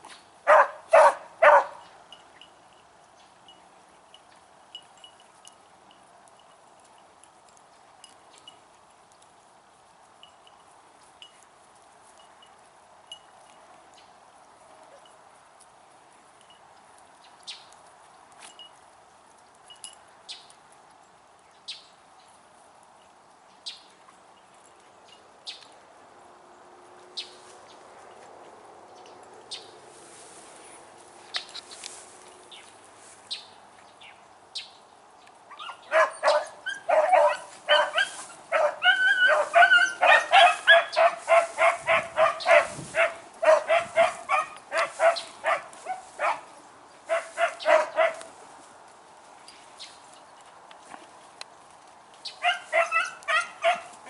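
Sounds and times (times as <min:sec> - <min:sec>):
beagles baying: 0:00.5 - 0:01.9, 0:35.6 - 0:48.3, 0:52.3 - 0:54.0.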